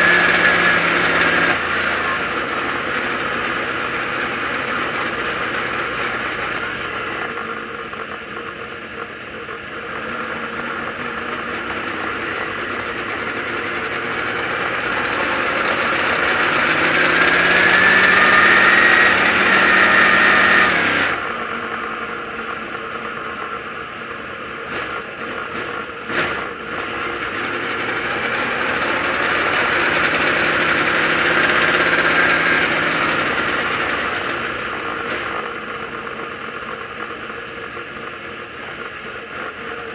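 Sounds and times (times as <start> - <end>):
race car engine accelerating: 0.0 - 7.4, 10.8 - 21.8, 24.7 - 35.6.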